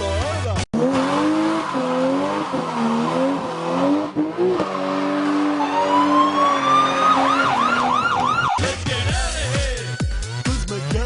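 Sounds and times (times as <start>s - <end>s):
car engine revving: 0.6s - 8.6s
siren winding up: 4.6s - 8.6s.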